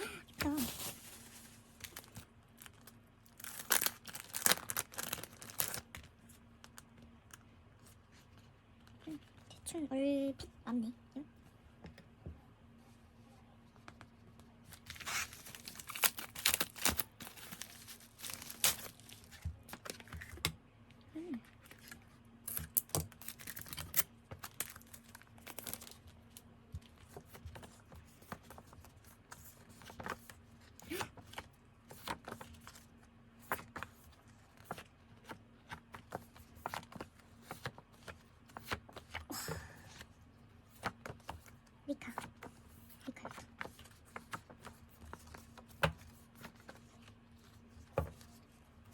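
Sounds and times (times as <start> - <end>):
packaging torn and crinkled: 0.5 - 6.0, 14.8 - 19.3, 21.8 - 26.1.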